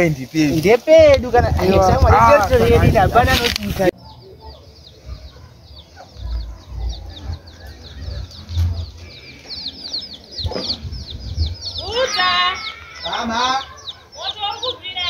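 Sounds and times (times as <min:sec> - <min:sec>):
birds chirping: 0:00.0 - 0:15.0
wind rumble on microphone: 0:01.0 - 0:03.9, 0:10.4 - 0:12.0.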